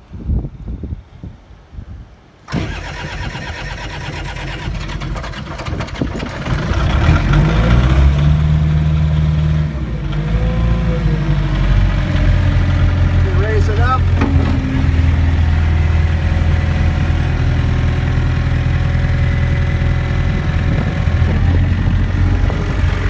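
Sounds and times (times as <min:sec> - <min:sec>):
engine starting: 0:02.5 - 0:07.8
skid steer engine running: 0:02.5 - 0:23.0.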